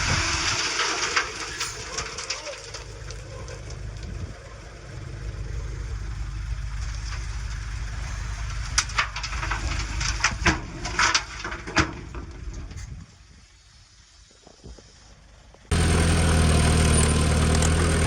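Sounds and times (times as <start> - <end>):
bulldozer diesel engine rumbling: 0.0 - 18.0.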